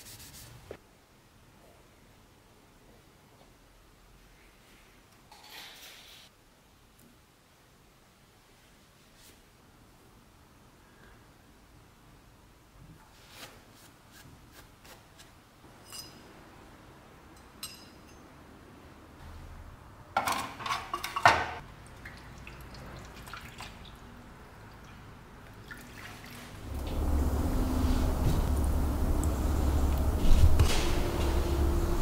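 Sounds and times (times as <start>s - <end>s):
low steady hum: 26.5s - 32.0s.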